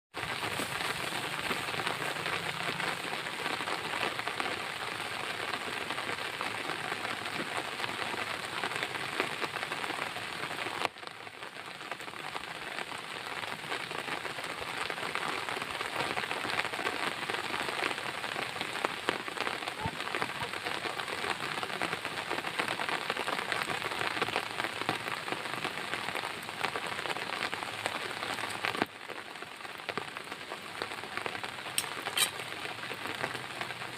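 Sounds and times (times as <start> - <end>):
heavy rain pattering: 0.1 - 33.9.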